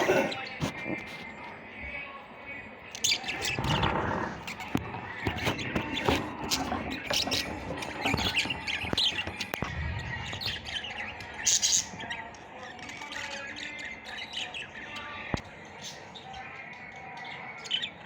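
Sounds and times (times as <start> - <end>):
birds calling and chirping: 0.0 - 18.0.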